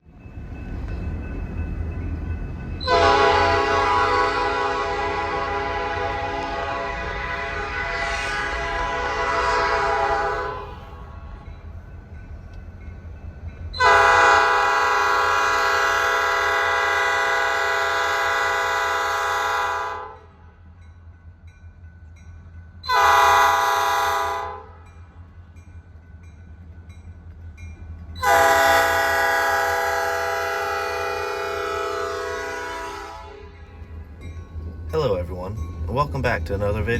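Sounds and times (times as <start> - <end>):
locomotive air horn blasts: 2.8 - 11.4, 13.8 - 20.3, 22.9 - 24.8, 28.2 - 33.6.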